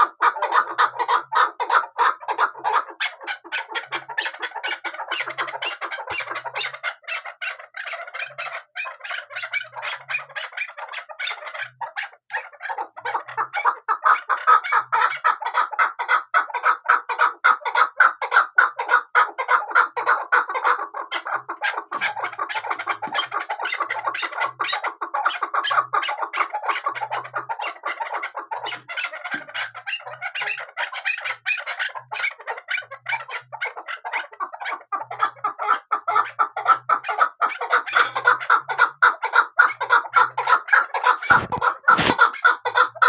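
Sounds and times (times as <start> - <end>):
partridges clucking: 39.8 - 43.0.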